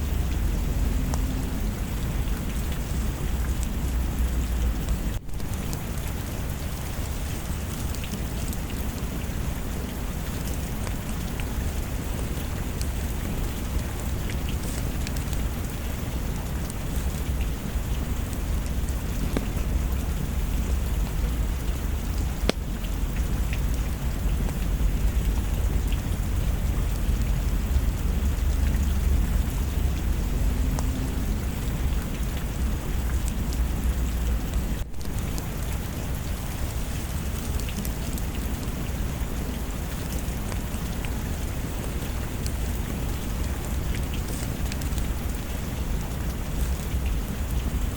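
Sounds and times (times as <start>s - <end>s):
low rumble of thunder: 0.0s - 5.8s
heavy rain: 0.0s - 47.9s
small sharp ticks: 43.6s - 45.4s.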